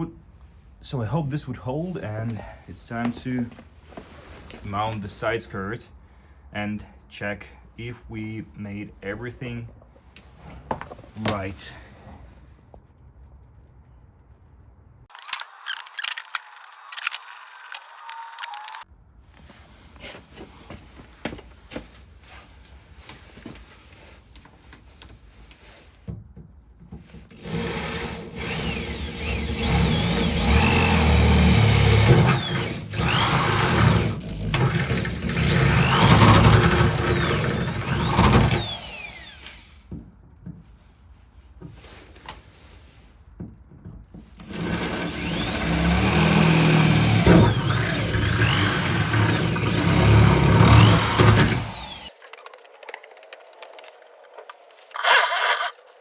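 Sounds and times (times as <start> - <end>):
power drill running: 15.1 - 18.8, 27.4 - 39.8, 44.5 - 52.1, 54.9 - 55.8.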